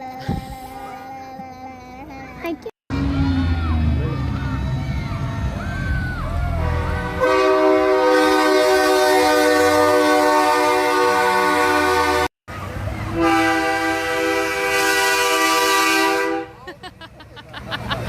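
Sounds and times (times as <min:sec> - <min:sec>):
truck air horn blasts: 0:06.5 - 0:12.3, 0:13.1 - 0:16.6.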